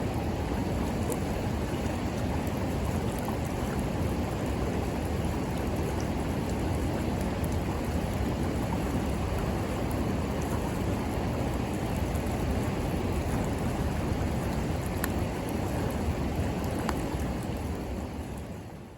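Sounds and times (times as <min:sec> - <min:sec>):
river water flowing: 0:00.0 - 0:18.9
campfire crackling and popping: 0:12.9 - 0:17.6.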